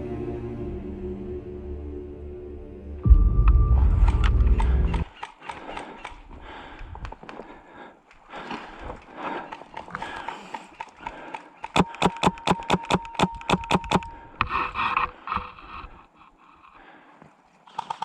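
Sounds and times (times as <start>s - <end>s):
airsoft gun rapid shots: 10.3s - 14.1s.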